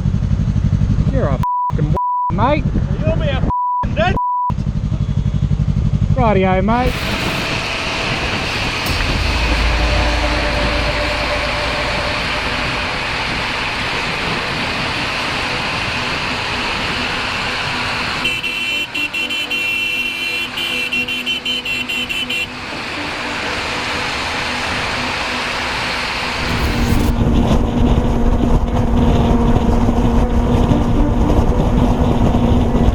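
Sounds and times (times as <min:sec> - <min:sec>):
motorcycle engine: 0:04.6 - 0:18.2
wind noise on microphone: 0:06.8 - 0:17.3, 0:26.4 - 0:32.9
high-pitched horn toots: 0:06.8 - 0:32.9.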